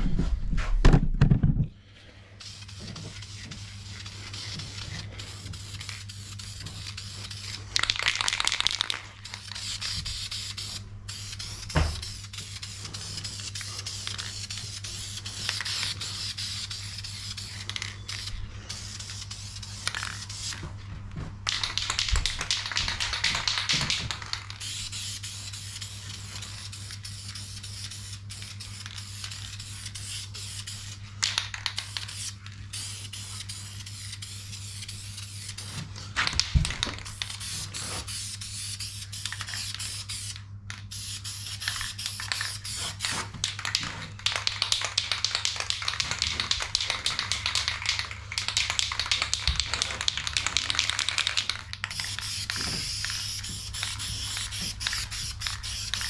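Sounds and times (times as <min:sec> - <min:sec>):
aerosol can spraying: 0:02.4 - 0:20.6, 0:21.5 - 0:31.0, 0:31.8 - 0:35.8, 0:36.4 - 0:43.2, 0:50.8 - 0:56.0.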